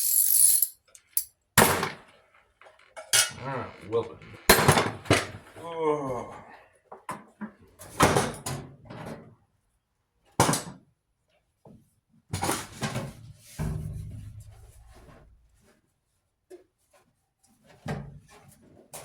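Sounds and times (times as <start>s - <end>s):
dryer panels knocking and clattering: 12.4s - 15.6s.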